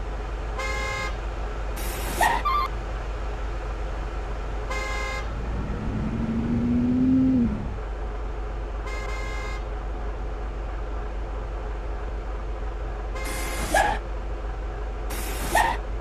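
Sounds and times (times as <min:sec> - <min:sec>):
truck engine rumbling and revving: 0:00.0 - 0:16.0
vehicle horn toots: 0:00.6 - 0:01.2, 0:04.7 - 0:05.4, 0:08.9 - 0:09.6.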